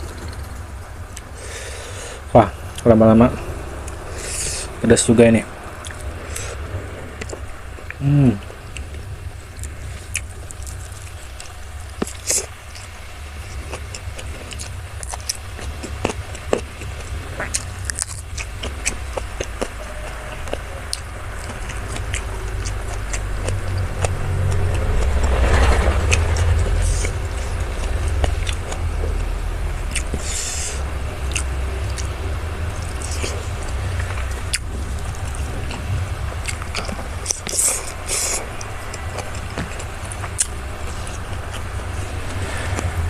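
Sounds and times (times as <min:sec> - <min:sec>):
traffic engine rumble: 0:00.0 - 0:43.0
chewing: 0:07.2 - 0:43.0
clicks and scrapes of eating: 0:09.6 - 0:29.3, 0:32.7 - 0:43.0.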